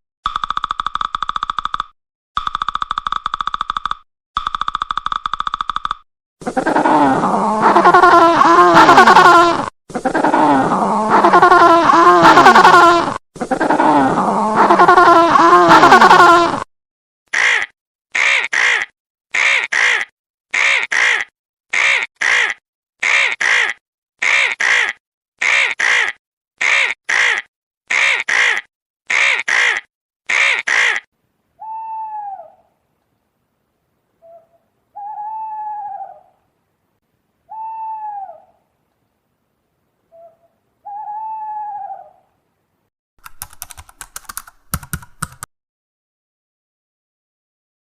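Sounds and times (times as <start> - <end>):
rapid clicks: 0.3 - 6.0, 43.2 - 45.5
bird giving clear arching calls: 17.4 - 31.1.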